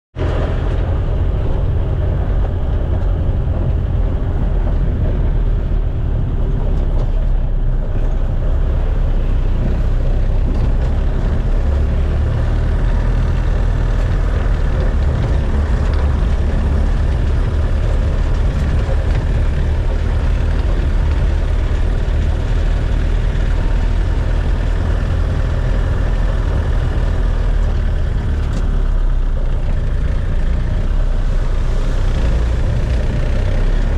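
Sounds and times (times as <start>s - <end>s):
vehicle engine rumble: 0.1s - 33.9s.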